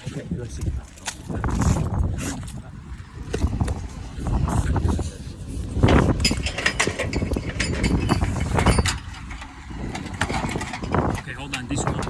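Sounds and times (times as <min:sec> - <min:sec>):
metallic clinks and knocks: 0:06.2 - 0:12.0.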